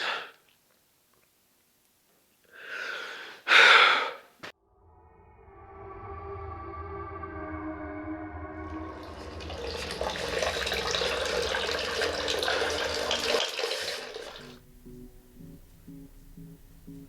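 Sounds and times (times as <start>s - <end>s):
water running: 8.8s - 14.7s.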